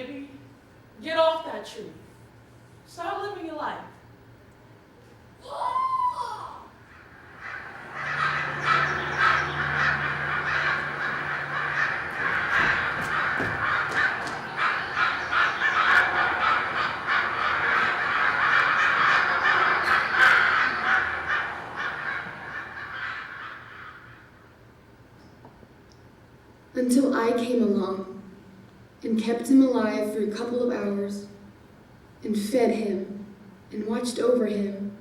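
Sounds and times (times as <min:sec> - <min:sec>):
flock of birds chattering: 0:06.9 - 0:24.5.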